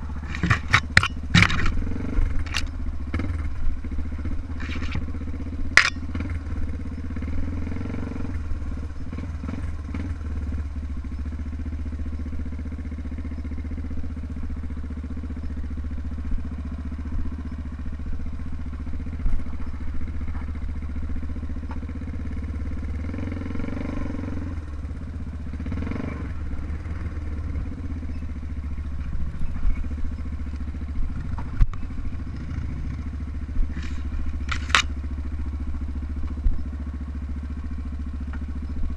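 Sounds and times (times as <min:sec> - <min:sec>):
motorcycle engine running: 0:00.0 - 0:38.9
sharp clicks: 0:00.2 - 0:02.8.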